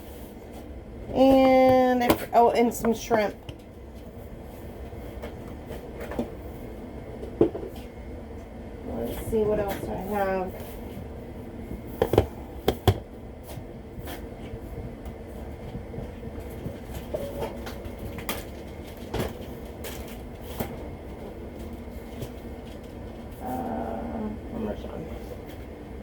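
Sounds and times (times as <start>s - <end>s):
steady low hum: 0.0s - 26.0s
knocks and clicks of containers: 12.0s - 13.1s.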